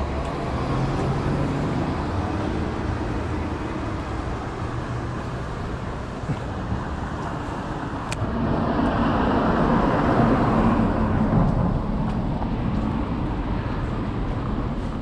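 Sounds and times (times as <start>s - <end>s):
vehicle passing by: 7.4s - 15.0s.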